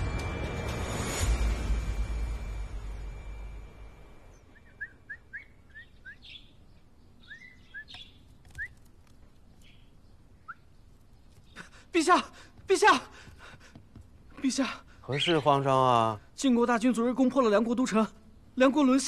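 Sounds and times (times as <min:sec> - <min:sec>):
small birds chirping: 0:04.3 - 0:19.0.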